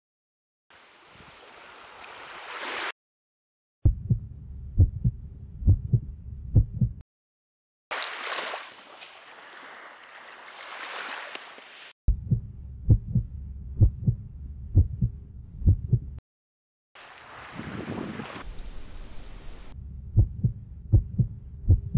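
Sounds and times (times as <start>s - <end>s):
heartbeat thumps: 3.8s - 7.0s, 12.1s - 16.2s, 20.2s - 21.9s
low rumble: 3.9s - 7.0s, 12.1s - 16.2s, 18.5s - 21.9s
sea water washing over pebbles: 7.9s - 11.9s, 17.0s - 19.4s.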